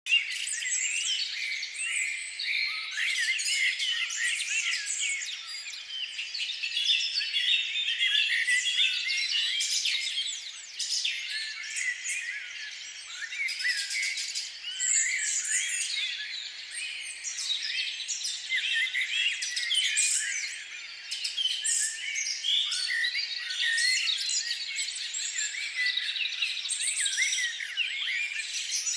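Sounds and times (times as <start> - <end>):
small birds chirping: 0.1 - 28.9.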